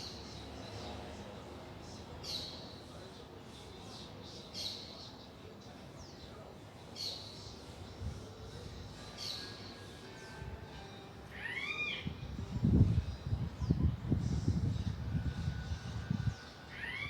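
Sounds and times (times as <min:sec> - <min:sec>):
small birds chirping: 0:01.8 - 0:10.4.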